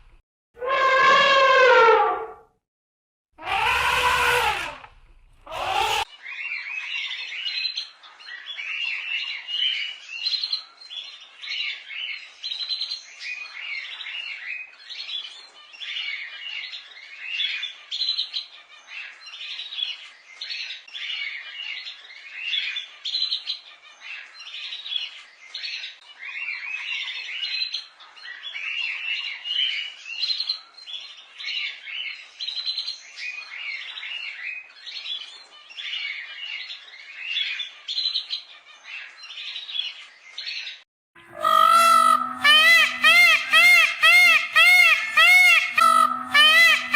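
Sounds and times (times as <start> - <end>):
birds chirping: 41.2 - 46.9.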